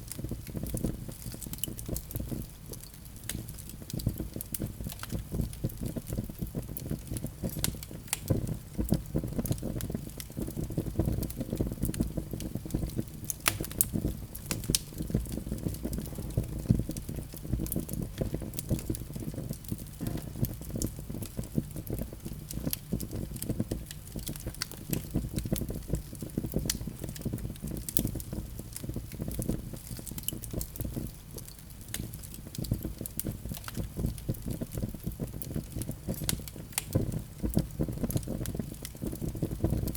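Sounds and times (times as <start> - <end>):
fire crackling and popping: 0.0 - 39.9
low rumble of flames: 0.0 - 39.9.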